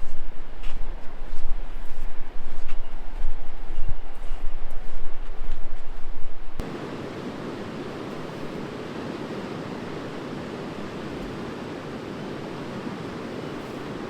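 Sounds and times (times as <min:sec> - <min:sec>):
river water rushing: 0:06.6 - 0:14.0.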